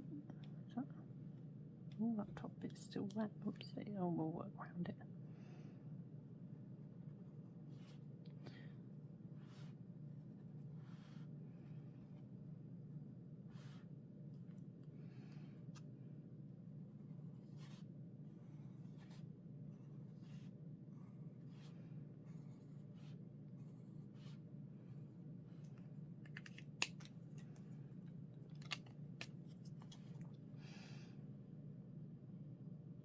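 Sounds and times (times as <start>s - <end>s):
pen scratching on paper: 16.9s - 25.1s.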